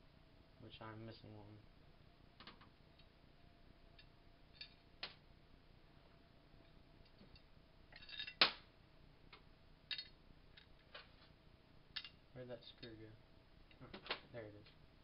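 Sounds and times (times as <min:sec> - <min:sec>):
metal parts clicking and clinking: 0:04.0 - 0:04.8, 0:07.0 - 0:08.4, 0:09.9 - 0:11.1, 0:11.9 - 0:13.0.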